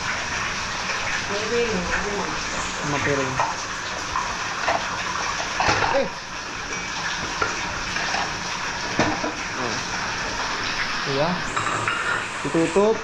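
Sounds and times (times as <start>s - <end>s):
heavy rain hissing: 0.0s - 4.6s, 9.4s - 13.0s.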